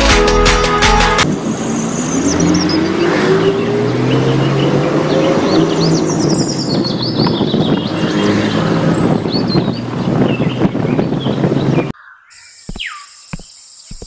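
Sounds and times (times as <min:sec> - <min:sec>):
car engine running: 0:01.2 - 0:11.9
birds chirping: 0:01.2 - 0:14.0.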